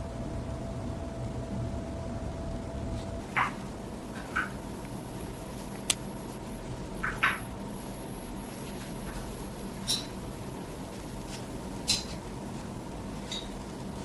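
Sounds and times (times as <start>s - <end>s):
low hiss and hum: 0.0s - 14.0s
sharp light clicks: 5.8s - 6.1s.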